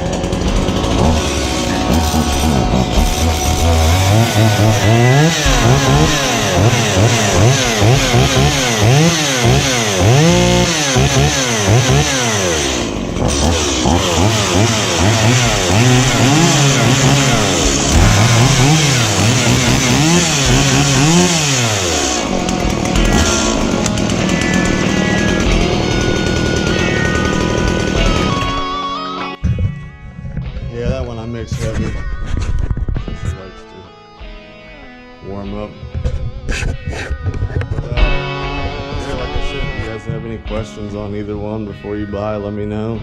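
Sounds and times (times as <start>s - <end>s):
chainsaw idling and revving: 0.0s - 28.9s.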